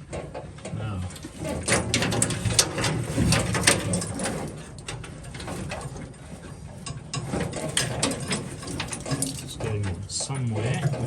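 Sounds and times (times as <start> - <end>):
wiring rustling and knocking: 0.0 - 11.0.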